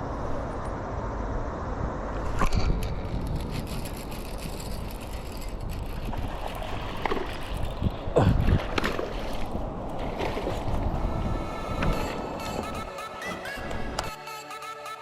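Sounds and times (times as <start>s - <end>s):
low rumble of wind: 0.0s - 14.1s
water sloshing and splashing: 3.5s - 12.4s.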